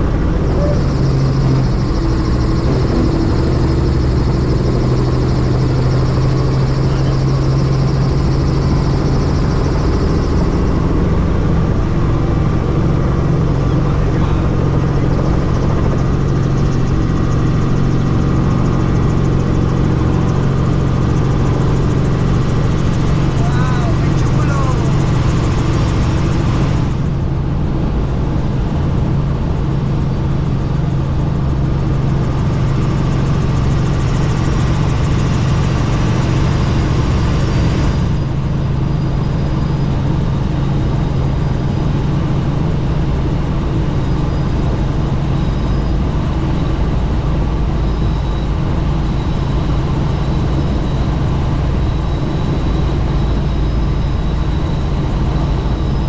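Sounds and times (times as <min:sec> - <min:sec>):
helicopter rotor and engine drone: 0:00.0 - 0:56.0.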